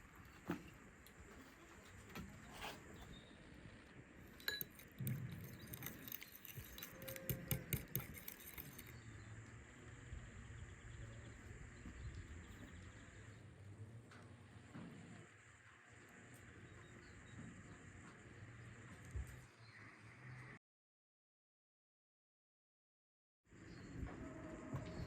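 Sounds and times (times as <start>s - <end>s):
faint low hum: 0.0s - 20.6s
kitchenware clinking and rattling: 4.2s - 9.0s.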